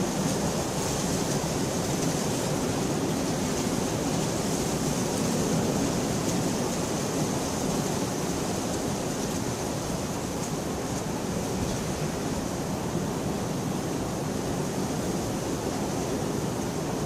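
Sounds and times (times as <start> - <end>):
rain on a window: 0.0 - 17.0.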